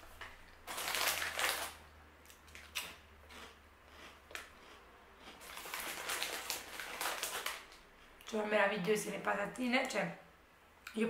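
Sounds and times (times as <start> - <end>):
crisps being chewed: 0.5 - 8.4.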